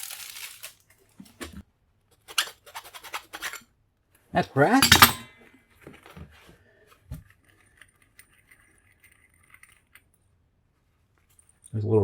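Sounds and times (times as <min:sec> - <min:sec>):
metal scrap clinking: 0:02.3 - 0:03.6, 0:04.7 - 0:05.3.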